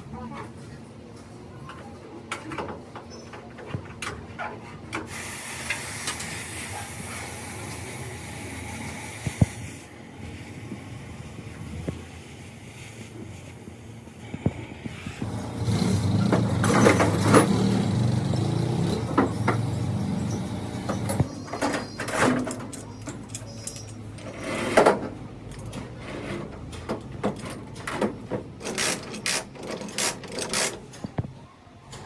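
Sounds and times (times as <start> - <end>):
knocks and clanks: 15.2 - 20.0.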